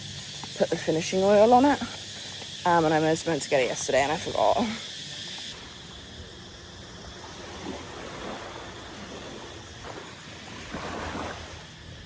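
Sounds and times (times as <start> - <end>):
sea waves washing onto beach: 5.6 - 11.8.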